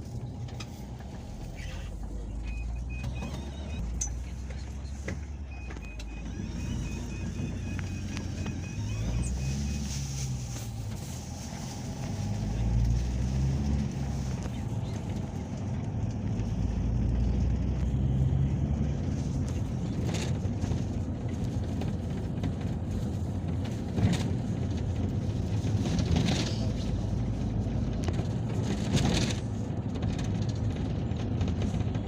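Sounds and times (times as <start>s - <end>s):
engine and road rumble: 0.0s - 32.0s
vehicle body rattles: 18.4s - 32.0s.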